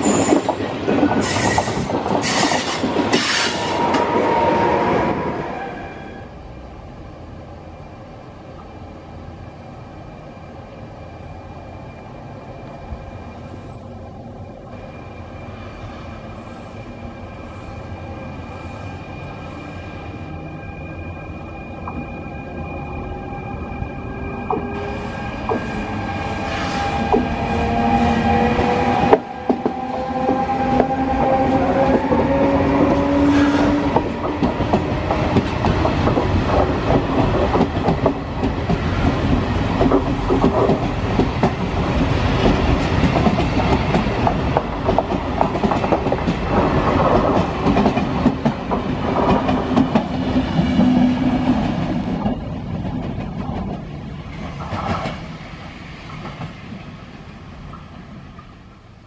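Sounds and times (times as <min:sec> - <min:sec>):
locomotive whine: 0:00.0 - 0:45.7.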